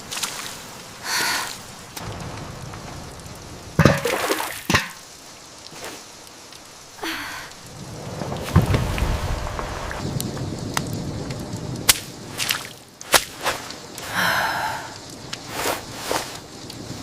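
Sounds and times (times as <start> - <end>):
steady rain hiss: 0.0 - 17.0
handling noise swishes and rustles: 15.3 - 17.0.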